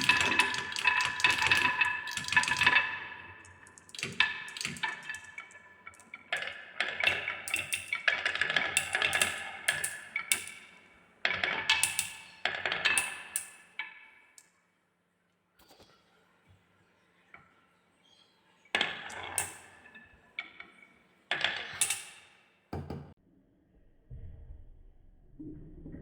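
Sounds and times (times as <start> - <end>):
marbles rolling down wooden run: 0.0 - 13.7, 18.8 - 22.3.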